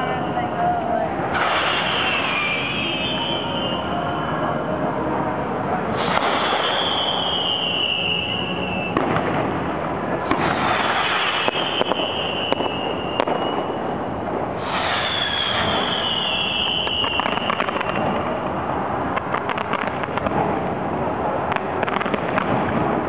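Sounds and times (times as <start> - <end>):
fireworks bangs and cracks: 0.0 - 4.6, 5.7 - 23.0
fireworks din: 0.0 - 4.9, 5.6 - 23.0
high whistles sliding down: 1.3 - 4.4, 6.0 - 9.0, 10.6 - 13.8, 14.6 - 18.0.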